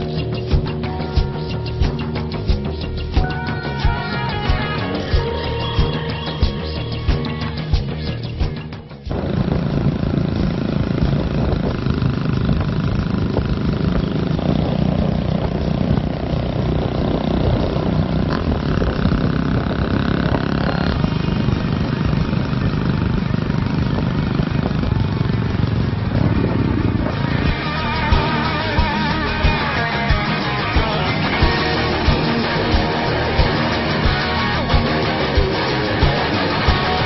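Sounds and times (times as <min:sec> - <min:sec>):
steady higher tone: 0:00.0 - 0:10.2, 0:26.2 - 0:37.0
motorcycle engines rumbling: 0:00.0 - 0:37.0.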